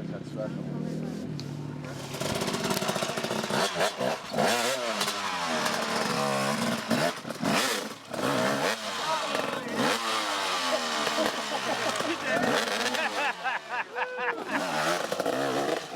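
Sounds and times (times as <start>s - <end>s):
motorcycle engine revving: 1.0s - 15.9s.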